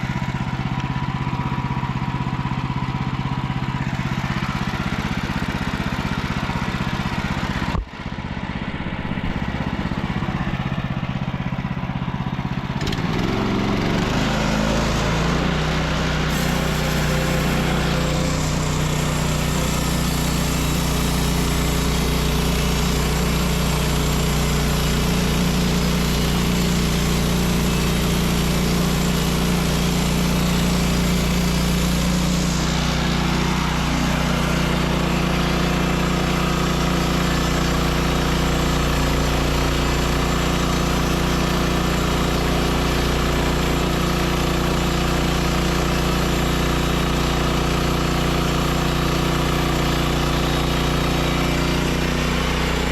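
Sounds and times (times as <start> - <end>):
gas engine running: 0.0 - 14.6, 16.1 - 52.9
band blade sawing hiss: 16.3 - 23.2, 24.5 - 34.3.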